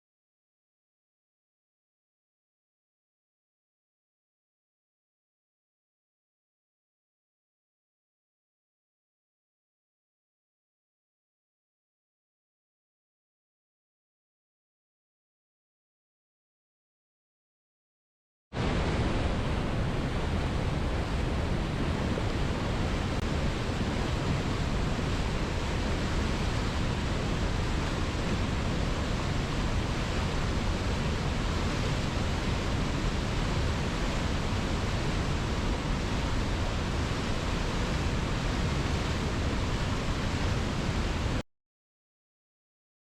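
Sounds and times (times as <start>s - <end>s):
steady rushing noise: 18.6s - 41.4s.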